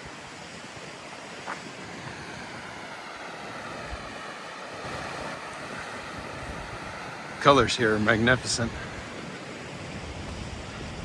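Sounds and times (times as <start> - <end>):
waterfall roaring: 0.0 - 11.0
wind buffeting microphone: 0.0 - 11.0.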